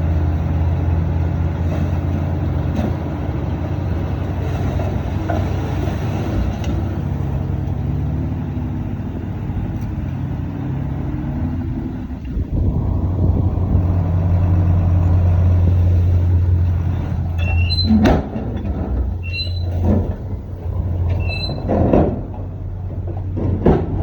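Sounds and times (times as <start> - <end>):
dump truck engine humming: 0.0 - 24.0
knocks and thumps: 16.5 - 24.0.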